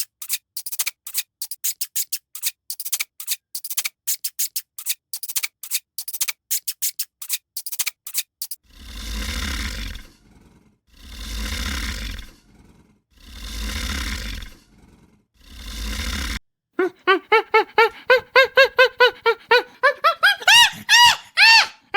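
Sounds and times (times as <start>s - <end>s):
dry clicking and scraping: 0.0s - 8.6s
animal roaring: 8.6s - 16.4s.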